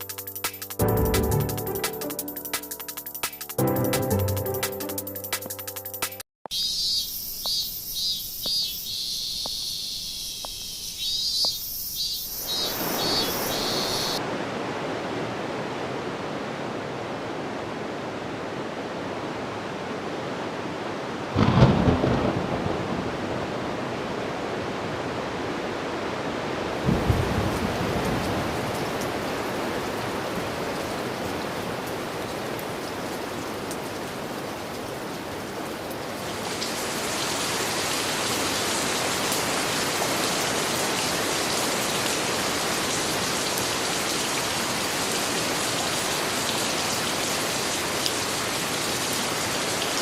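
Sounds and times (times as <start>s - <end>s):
heavy rain: 12.4s - 50.0s
thunder rumbling: 21.3s - 23.8s, 26.8s - 29.0s.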